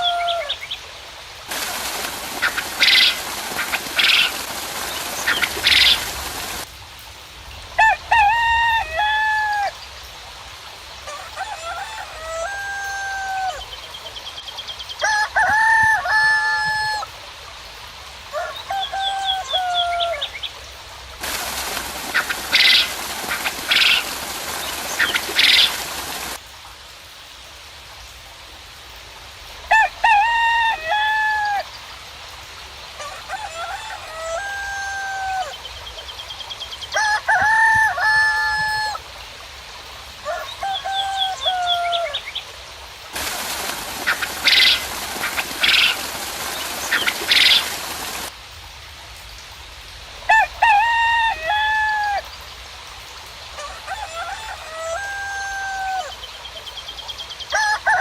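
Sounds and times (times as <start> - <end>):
roosters crowing: 0.0 - 0.6, 7.8 - 9.8, 11.0 - 13.8, 15.0 - 17.1, 18.3 - 20.3, 21.2 - 26.4, 29.7 - 31.7, 33.0 - 35.6, 36.9 - 39.0, 40.2 - 42.2, 43.1 - 48.3, 50.3 - 52.3, 53.6 - 56.3, 57.5 - 58.0
rain hissing: 0.0 - 57.7
small birds chirping: 1.6 - 6.7, 21.3 - 26.4, 43.2 - 48.3.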